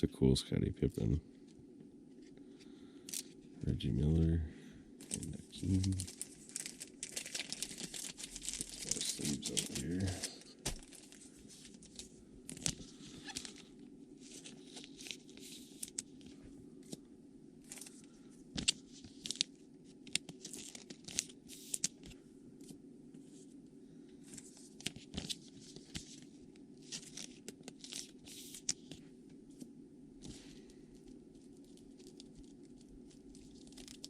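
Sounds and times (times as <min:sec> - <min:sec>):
steady low hum: 0:00.0 - 0:34.0
plastic crinkling and rustling: 0:05.0 - 0:17.0, 0:17.6 - 0:22.2, 0:24.2 - 0:29.0, 0:30.2 - 0:34.0.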